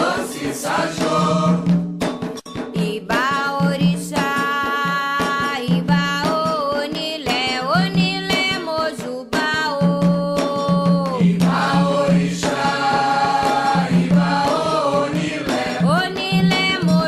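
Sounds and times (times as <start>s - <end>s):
rapid hand drum beating: 0.0s - 17.0s.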